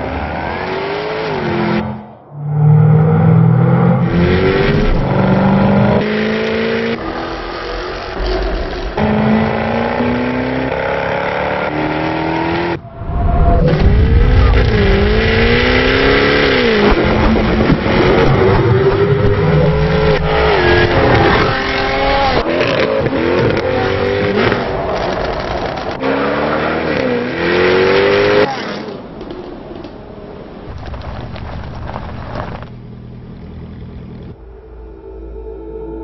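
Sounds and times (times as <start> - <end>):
car engine accelerating through gears: 0.0 - 12.8.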